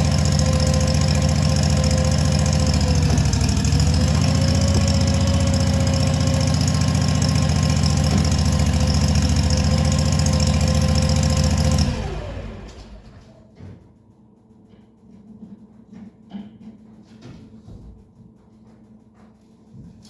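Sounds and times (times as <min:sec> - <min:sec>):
tractor engine running: 0:00.0 - 0:13.4.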